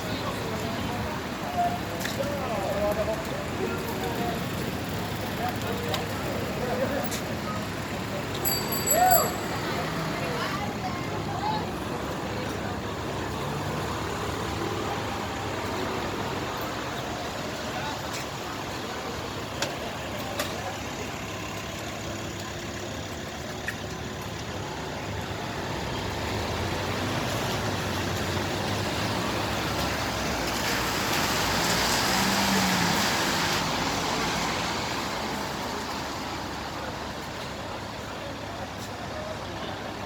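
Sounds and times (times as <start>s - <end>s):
vehicle passing on wet street: 24.5s - 39.9s.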